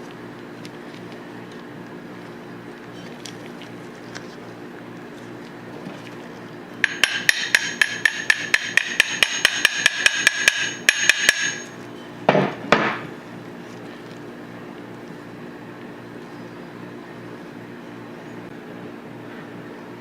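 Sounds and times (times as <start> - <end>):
hammer tapping steel: 6.8 - 11.8.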